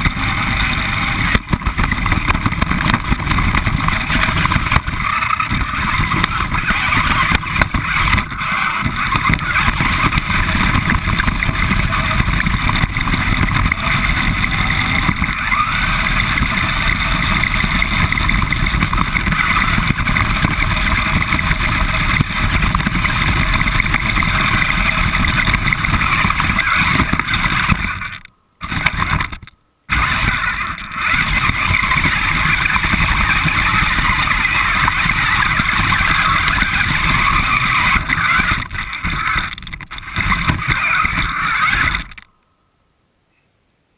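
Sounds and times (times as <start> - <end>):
toy car motor and tyres: 0.0 - 42.3.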